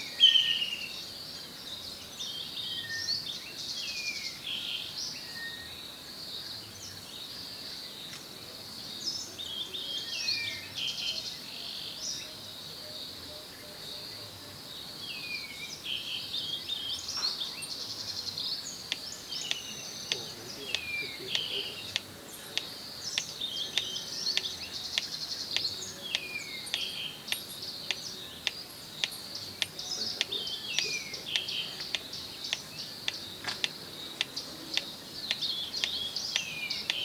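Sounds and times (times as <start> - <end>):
high insect hum: 0.0 - 37.0
birds chirping: 6.4 - 37.0
sharp ticks: 18.9 - 37.0.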